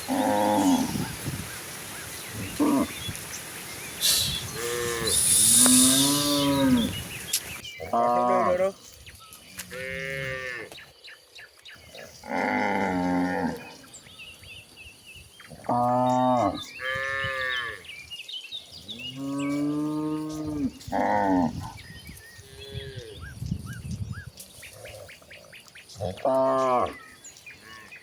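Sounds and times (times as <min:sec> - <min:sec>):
cattle mooing: 0:04.1 - 0:07.1.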